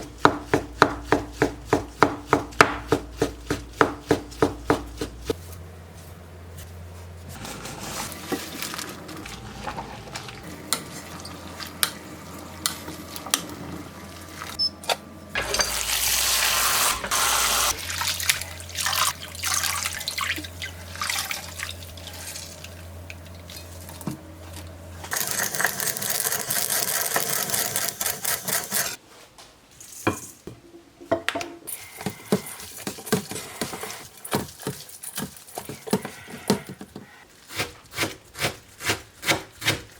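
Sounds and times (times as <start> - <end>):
utensils and dishes clattering: 15.4 - 16.2.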